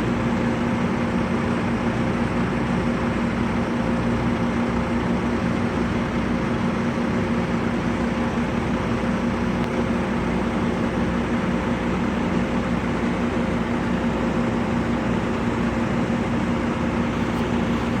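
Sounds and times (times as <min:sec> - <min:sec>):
vehicle engine and road noise: 0:04.0 - 0:18.0.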